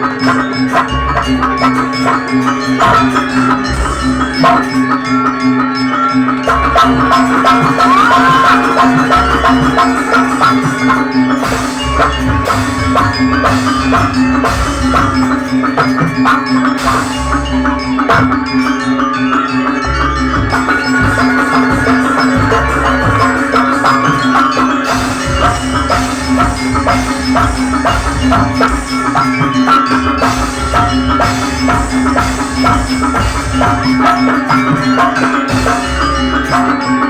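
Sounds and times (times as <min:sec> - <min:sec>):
drums: 0:00.0 - 0:37.0
mallet-struck percussion: 0:00.0 - 0:37.0
steady low drone: 0:06.4 - 0:18.8, 0:19.6 - 0:36.6.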